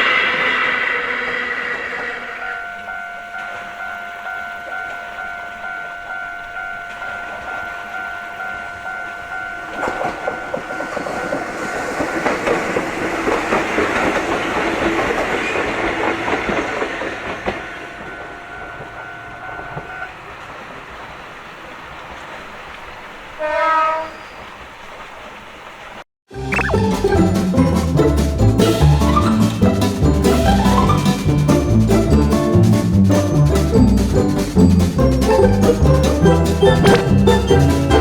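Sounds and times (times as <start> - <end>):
level-crossing alarm ringing: 2.0 - 12.3, 17.4 - 20.2
train wheels clattering: 9.6 - 20.9, 27.0 - 38.0
train horn: 23.4 - 24.3.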